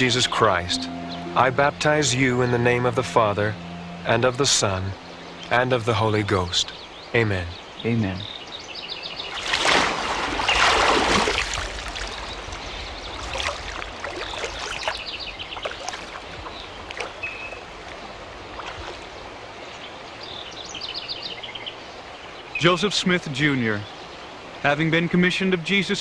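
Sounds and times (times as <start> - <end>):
birds chirping: 0.0 - 25.9
water sloshing and dripping: 9.2 - 19.6
water splashing: 9.2 - 19.7.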